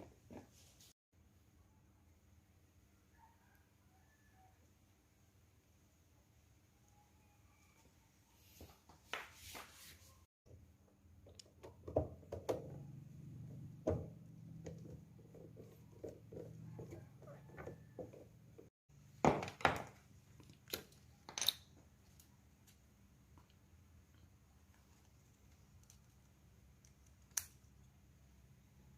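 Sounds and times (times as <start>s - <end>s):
clicks and knocks of small parts: 19.5s - 27.8s.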